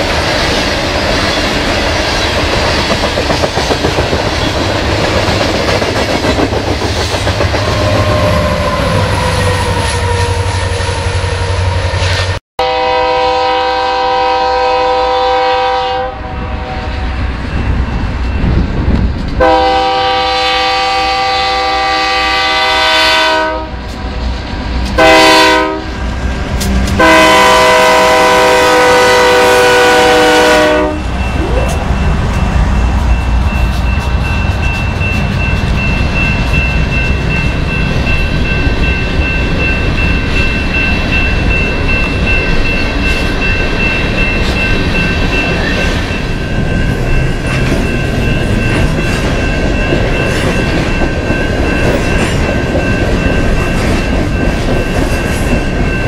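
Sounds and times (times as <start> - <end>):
freight train rumbling past: 0.0 - 56.0
high ringing tone: 7.4 - 12.1, 30.4 - 56.0
locomotive air horn blasts: 7.6 - 17.1, 19.4 - 23.9, 25.0 - 26.0, 27.0 - 31.2.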